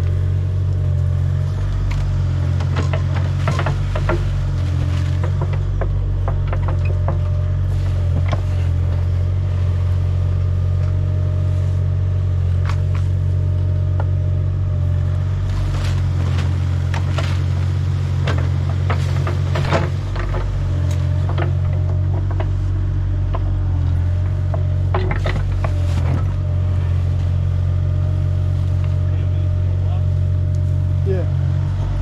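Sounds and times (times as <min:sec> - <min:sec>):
digging machine engine running: 0:00.0 - 0:32.0
metallic knocks and clanks: 0:02.6 - 0:07.5, 0:18.2 - 0:26.3.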